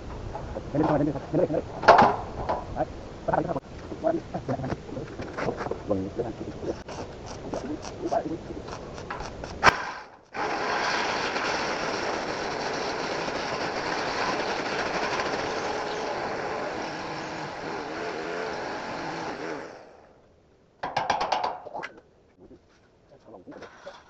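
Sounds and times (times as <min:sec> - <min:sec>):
motor-driven machine running: 0:10.3 - 0:20.1.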